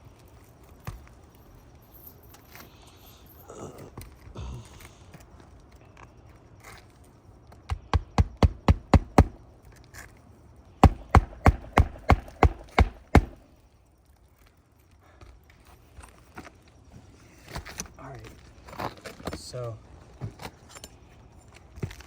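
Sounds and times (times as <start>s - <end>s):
hammer driving nails into shingles: 7.7s - 9.4s, 10.8s - 13.4s.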